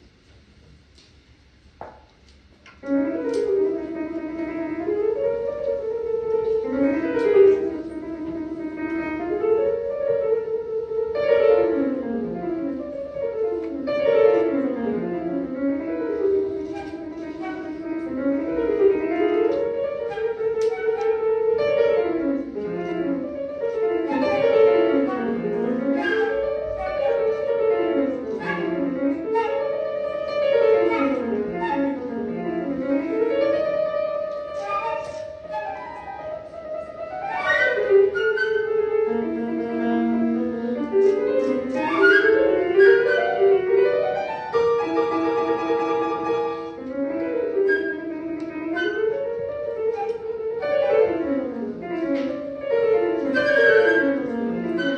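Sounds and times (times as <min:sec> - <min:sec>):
piano: 0:00.0 - 0:54.9
flute: 0:16.6 - 0:22.1, 0:23.2 - 0:32.1, 0:32.7 - 0:39.1, 0:41.0 - 0:51.6, 0:52.2 - 0:54.9.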